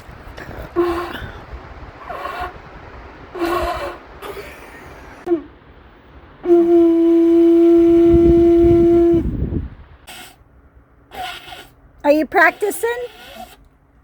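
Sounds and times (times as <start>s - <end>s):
horn blown in long note: 0.7s - 1.4s, 6.4s - 9.6s.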